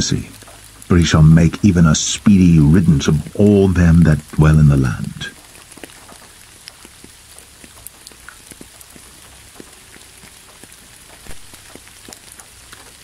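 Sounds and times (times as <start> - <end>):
raindrops tapping: 0.0 - 13.0
steady rain falling: 0.0 - 13.0.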